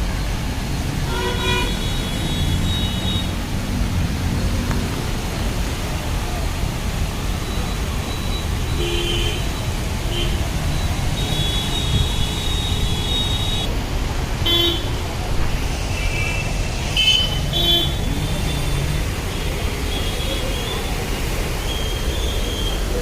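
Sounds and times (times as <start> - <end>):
traffic rumble: 0.0 - 23.0
vehicle horns honking: 1.1 - 3.4, 8.7 - 13.7, 14.4 - 15.0, 16.0 - 19.0.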